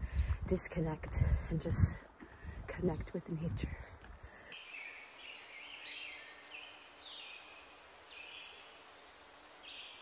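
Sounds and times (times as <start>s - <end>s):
birds whistling and chirping: 4.5s - 8.6s.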